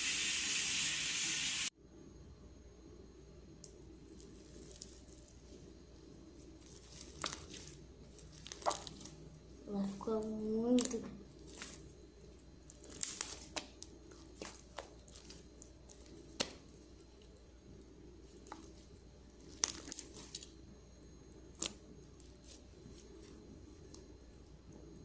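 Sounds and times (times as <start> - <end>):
slime crackling and clicking: 12.7 - 16.6.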